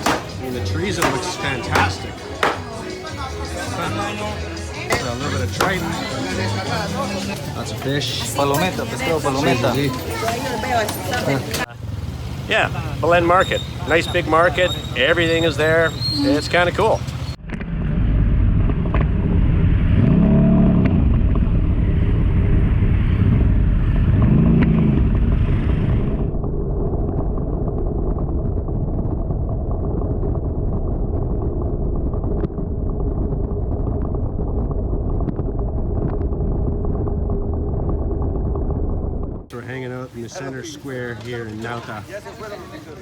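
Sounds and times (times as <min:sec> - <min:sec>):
noisy background: 0:00.0 - 0:11.7
vehicle engine running: 0:10.9 - 0:42.4.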